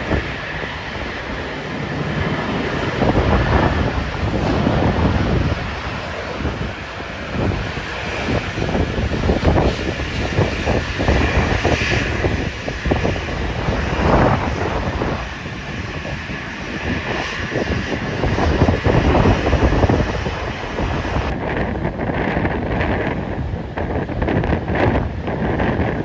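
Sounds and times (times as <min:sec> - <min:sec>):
airliner engines roaring: 0:00.0 - 0:26.0
wind buffeting microphone: 0:00.0 - 0:26.0.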